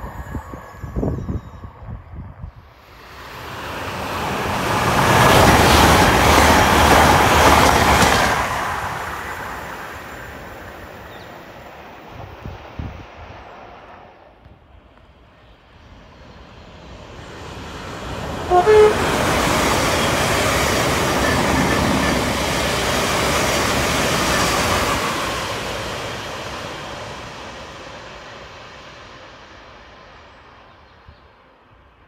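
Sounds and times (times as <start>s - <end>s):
train rushing past: 0.0s - 32.0s
train horn toots: 18.4s - 19.3s.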